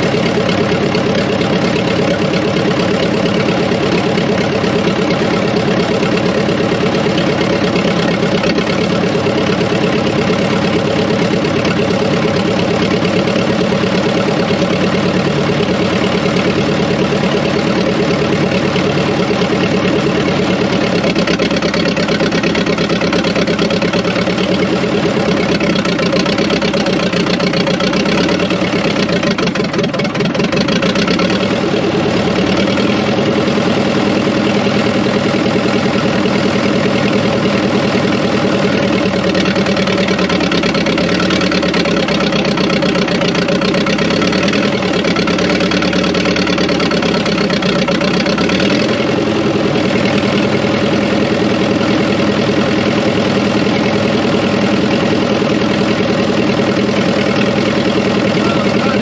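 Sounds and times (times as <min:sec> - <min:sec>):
engine running at low speed: 0:00.0 - 0:59.0.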